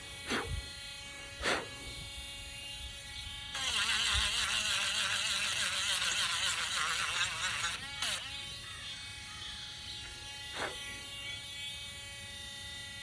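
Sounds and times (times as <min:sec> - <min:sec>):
electric sander whining: 0:03.4 - 0:10.4.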